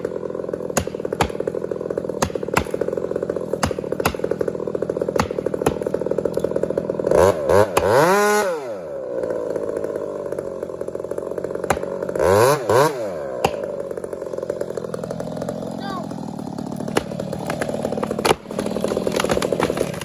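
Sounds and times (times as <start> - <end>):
chainsaw idling and revving: 0.0 - 20.0.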